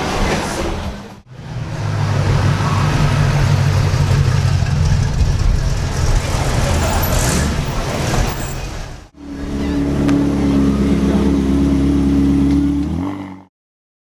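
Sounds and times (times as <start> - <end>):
mix of car engines: 0.0 - 13.4
car engine idling: 1.3 - 12.0.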